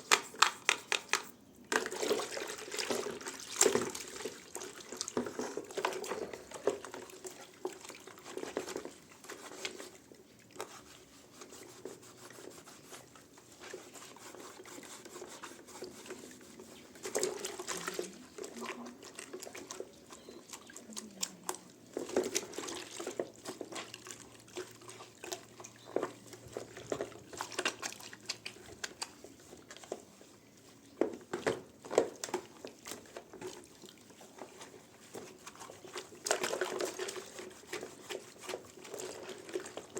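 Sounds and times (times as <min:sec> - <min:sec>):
small knocks and clatters: 0:00.0 - 0:12.0, 0:15.0 - 0:39.9
water splashing and dripping: 0:00.1 - 0:39.9.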